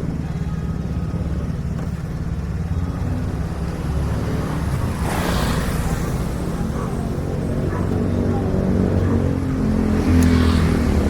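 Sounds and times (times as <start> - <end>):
traffic rumble: 0.0 - 11.0
vehicle passing close: 2.4 - 11.0.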